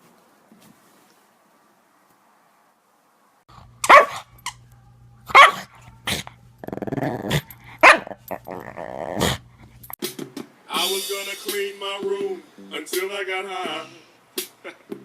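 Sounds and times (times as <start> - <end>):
dog barking: 3.8 - 4.3, 5.3 - 6.2, 7.8 - 8.5
dog growling: 5.5 - 9.8.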